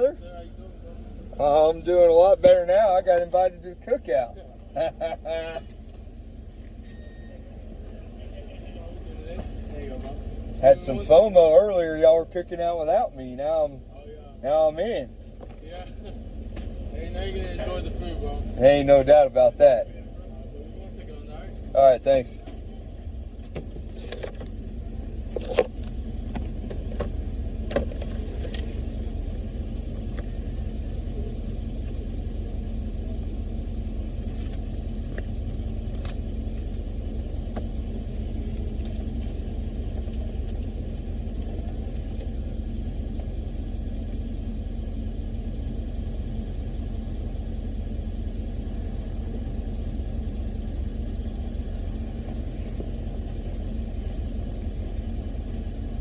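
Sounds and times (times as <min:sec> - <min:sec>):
vehicle engine droning: 0:00.0 - 0:56.0.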